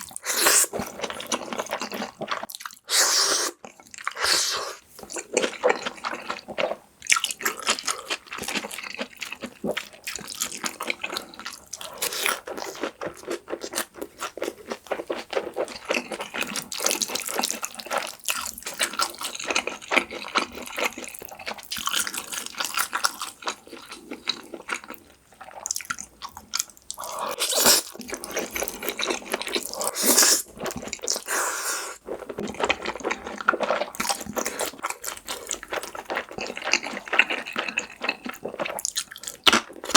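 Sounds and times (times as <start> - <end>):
wet chewing: 0.0 - 39.9
noodle slurping: 4.2 - 4.8, 31.2 - 32.0.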